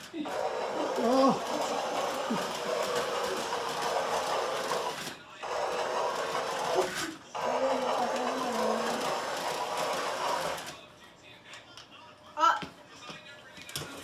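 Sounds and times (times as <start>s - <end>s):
toy train motor whirring: 0.0s - 10.8s.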